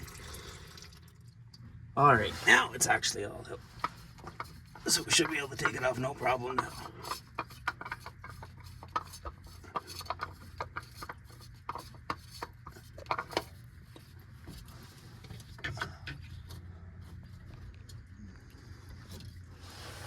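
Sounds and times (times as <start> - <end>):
steady low hum: 0.0 - 20.0
metal canister scraping and clicking: 2.4 - 16.6.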